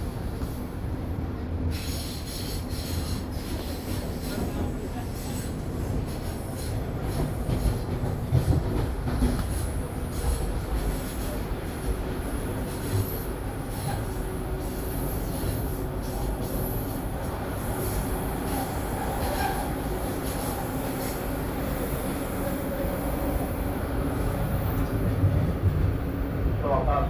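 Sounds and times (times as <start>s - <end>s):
train wheels rumbling on rail: 0.0s - 27.0s
train bumps: 2.3s - 16.7s.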